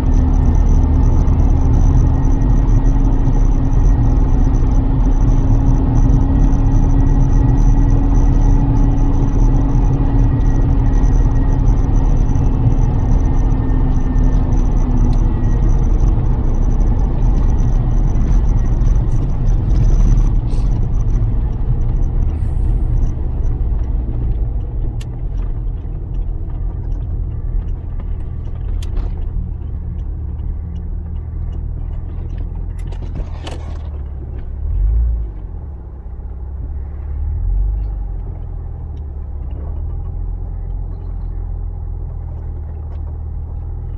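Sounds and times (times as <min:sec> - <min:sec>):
car engine rumble: 0:00.0 - 0:43.9
road noise: 0:00.0 - 0:43.9.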